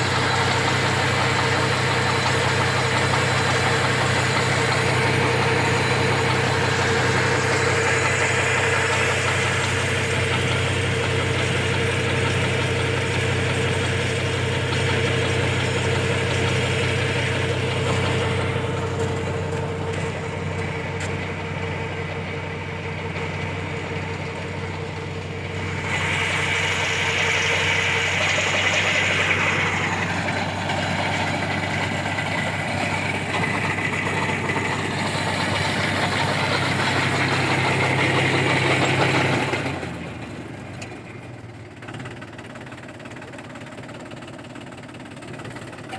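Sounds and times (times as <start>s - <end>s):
water pump rushing hiss: 0.0s - 18.7s, 25.5s - 39.8s
tractor engine running: 0.0s - 45.9s.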